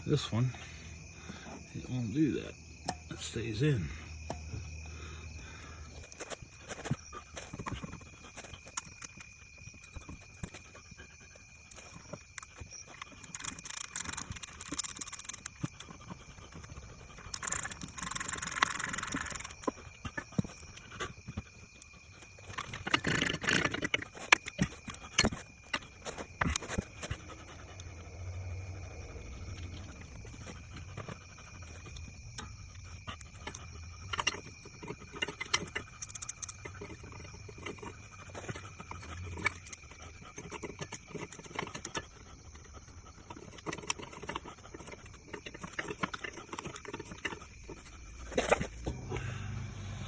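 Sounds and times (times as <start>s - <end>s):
hand tools clicking on metal: 11.6s - 27.2s, 30.0s - 48.9s
steady low hum: 47.4s - 50.0s.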